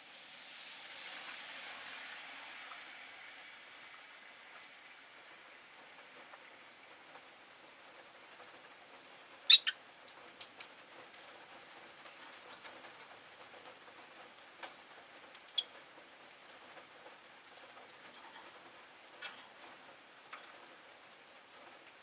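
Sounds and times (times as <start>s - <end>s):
lovebirds chirping: 9.5s - 9.7s.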